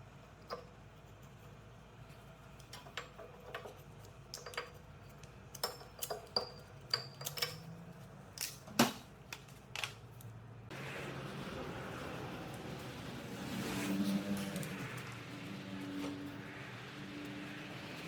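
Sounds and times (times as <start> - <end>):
metal tools clinking: 5.5 - 7.7.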